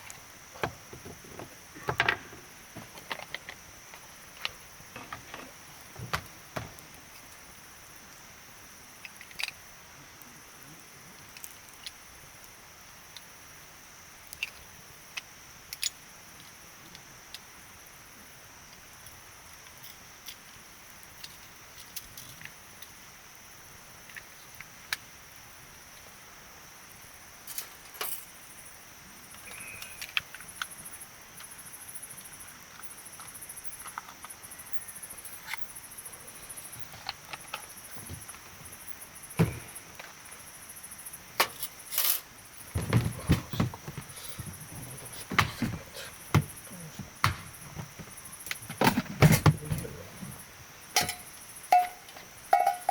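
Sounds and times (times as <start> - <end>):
campfire crackling and popping: 0.0 - 49.0
knocks and clatters: 41.4 - 50.4.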